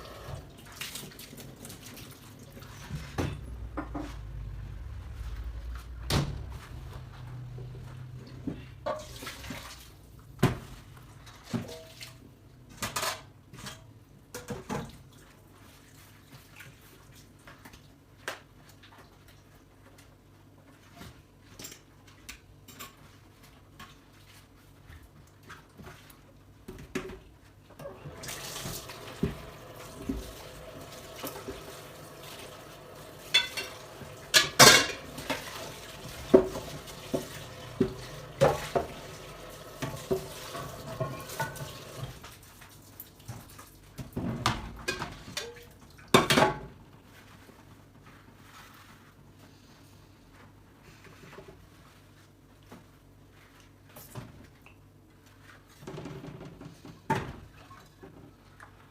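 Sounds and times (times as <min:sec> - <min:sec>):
tap water running: 0:00.0 - 0:04.0, 0:08.8 - 0:10.3, 0:27.8 - 0:46.0
dishes clattering: 0:33.1 - 0:42.0
dishes and cutlery clinking: 0:33.2 - 0:38.9.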